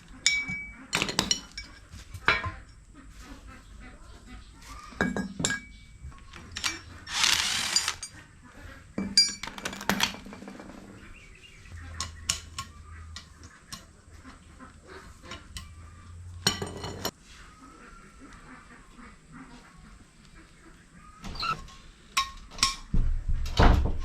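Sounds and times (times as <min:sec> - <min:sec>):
metal tools clinking: 0:06.5 - 0:08.2.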